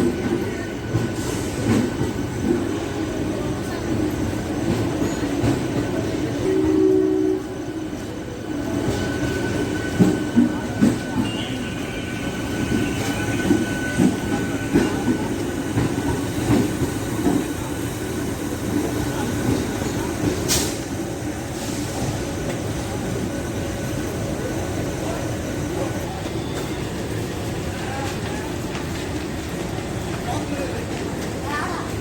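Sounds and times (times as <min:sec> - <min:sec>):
train rumbling along tracks: 0:00.0 - 0:32.0
faint steady squeal: 0:06.5 - 0:16.4.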